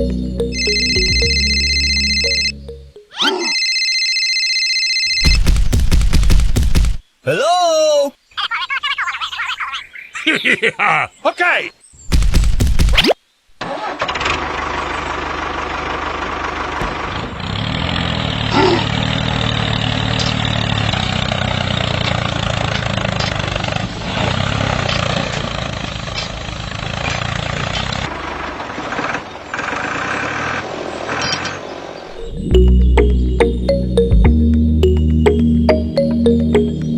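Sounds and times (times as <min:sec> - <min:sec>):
small tractor motor running: 0:13.7 - 0:32.0.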